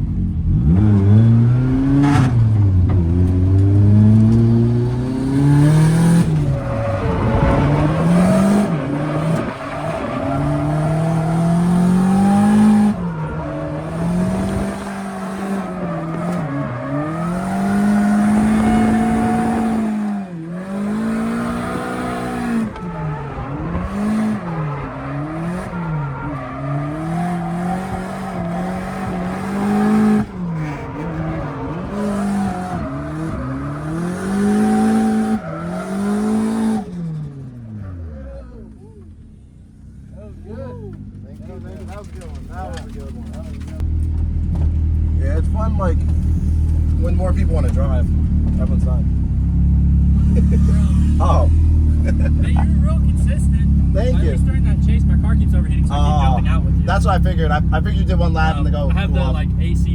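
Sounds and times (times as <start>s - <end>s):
car engine revving hard: 0.0s - 38.2s, 45.2s - 59.9s
tyre squeal: 5.8s - 37.3s.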